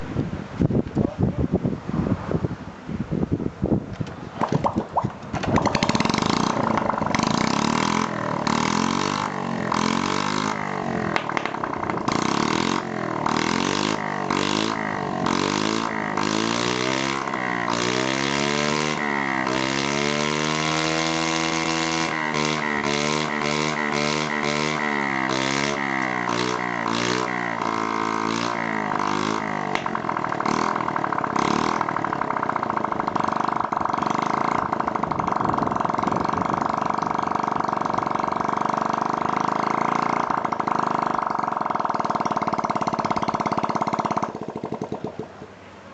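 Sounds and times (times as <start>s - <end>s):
small motorbike engine idling: 4.4s - 45.6s.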